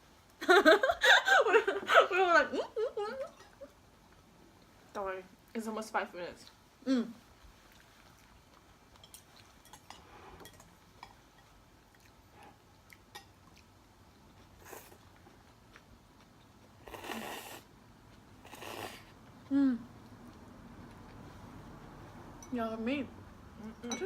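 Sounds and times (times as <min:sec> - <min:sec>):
soft chewing: 0:06.4 - 0:22.6.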